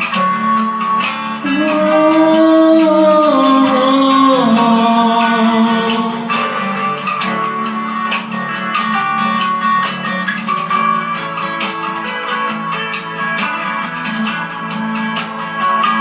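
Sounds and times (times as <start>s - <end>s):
guitar chords: 0.0s - 16.0s
person singing long wordless note: 1.4s - 7.6s.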